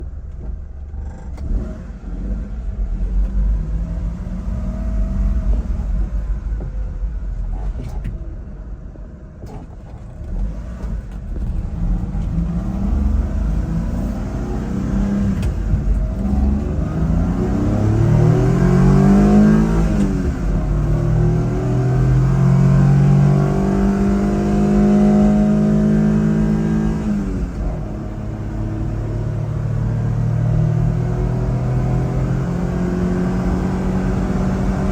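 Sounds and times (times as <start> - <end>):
road rumble: 0.0 - 34.9
small truck engine revving: 10.3 - 34.9.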